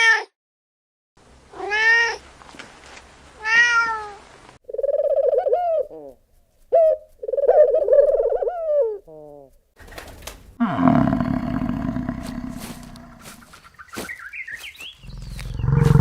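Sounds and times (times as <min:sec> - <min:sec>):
cat meowing: 0:01.6 - 0:02.2, 0:03.4 - 0:04.2.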